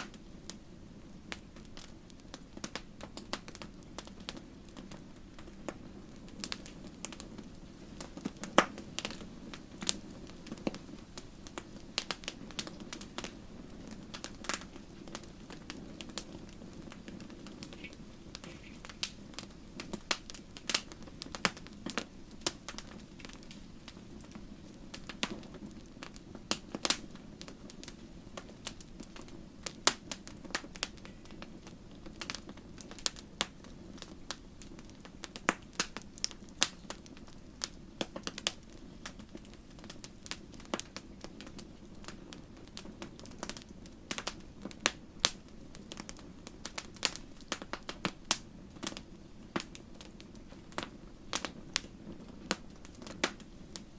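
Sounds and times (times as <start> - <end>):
campfire crackling: 0.0 - 53.9.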